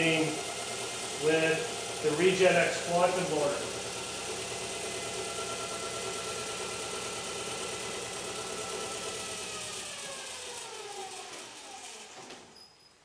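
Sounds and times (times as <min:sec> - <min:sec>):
electric motor whine: 0:00.0 - 0:12.3.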